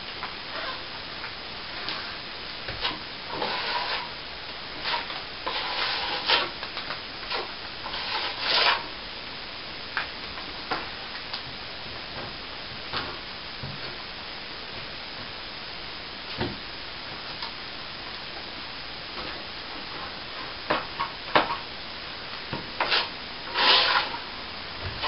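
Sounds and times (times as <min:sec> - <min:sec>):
steel trowel scraping: 0:02.8 - 0:04.2, 0:04.8 - 0:06.6, 0:07.3 - 0:08.9, 0:22.8 - 0:24.3.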